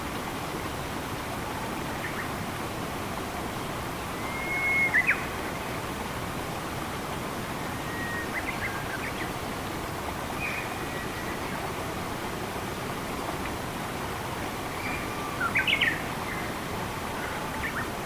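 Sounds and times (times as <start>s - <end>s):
flowing water: 0.0s - 18.0s
bird whistling and chirping: 4.2s - 5.2s, 7.8s - 8.8s.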